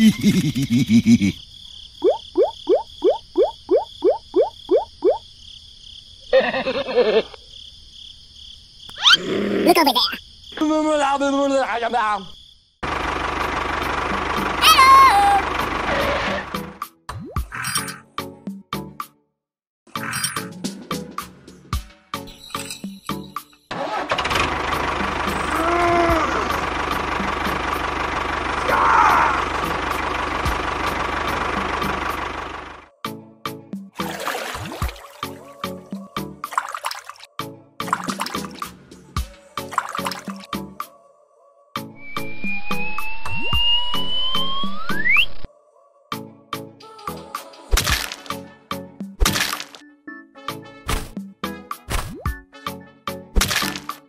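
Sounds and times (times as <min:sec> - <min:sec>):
animal calls: 0:09.0 - 0:10.2
small engine running: 0:12.8 - 0:16.8, 0:23.7 - 0:32.9
squeal rising and falling: 0:42.0 - 0:45.5.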